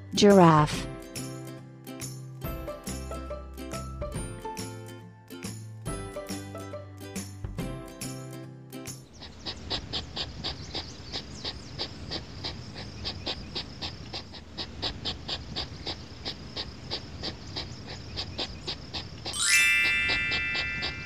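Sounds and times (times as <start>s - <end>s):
hedgehog sniffing: 9.0s - 21.0s.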